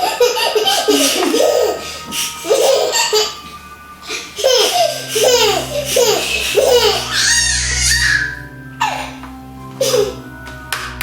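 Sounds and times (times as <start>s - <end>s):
young child laughing: 0.0s - 3.4s.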